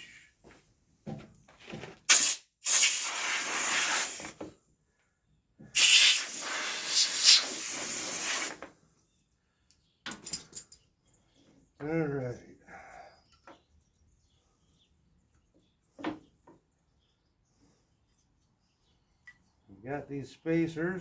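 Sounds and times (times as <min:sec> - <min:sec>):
pressurized gas hissing from nozzle: 0:02.1 - 0:04.4, 0:05.8 - 0:08.6.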